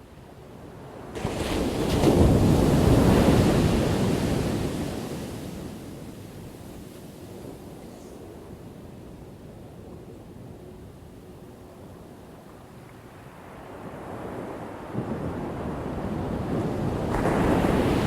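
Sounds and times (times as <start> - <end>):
ocean wave breaking: 17.0 - 18.0.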